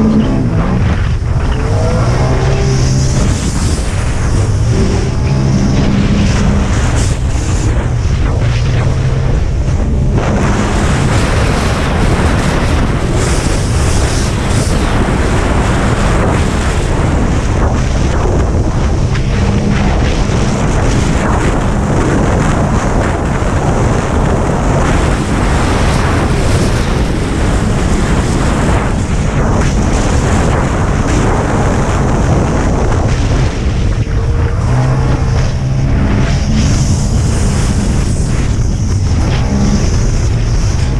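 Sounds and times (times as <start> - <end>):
jet ski engine: 0.0 - 40.9
rushing water: 0.0 - 40.9
wind buffeting microphone: 0.0 - 40.9.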